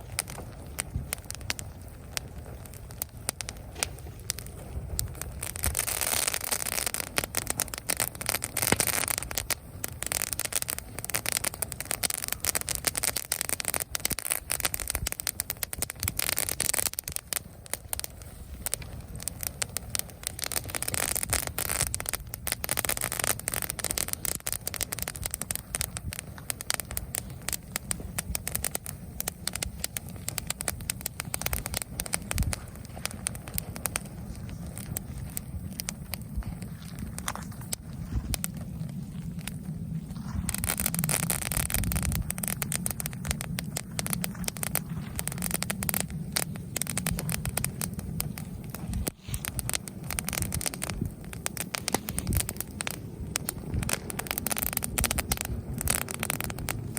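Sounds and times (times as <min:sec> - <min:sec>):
campfire crackling and popping: 0:00.0 - 0:56.9
low rumble of flames: 0:00.0 - 0:56.9.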